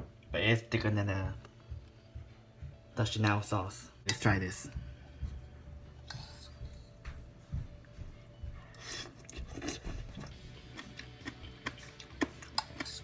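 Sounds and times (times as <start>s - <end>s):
quiet background music: 0.0s - 13.0s
soft chewing: 4.7s - 13.0s.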